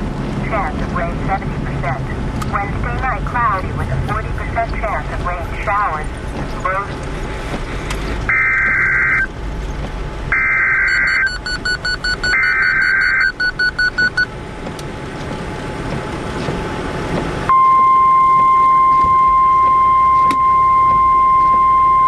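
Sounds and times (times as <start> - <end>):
vehicle road noise hum: 0.0 - 22.0
warbling data tones: 8.3 - 9.3
rapid short beeps: 10.8 - 14.3.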